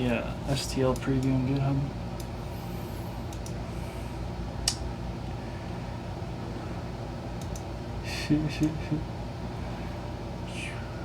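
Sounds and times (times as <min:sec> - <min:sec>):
low electrical hum: 0:00.0 - 0:11.0
sharp click: 0:04.6 - 0:04.8, 0:07.4 - 0:07.7.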